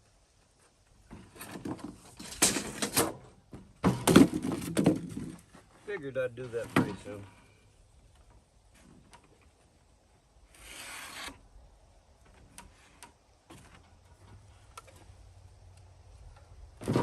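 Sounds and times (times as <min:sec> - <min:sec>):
scrape on foam board: 0:10.5 - 0:11.4.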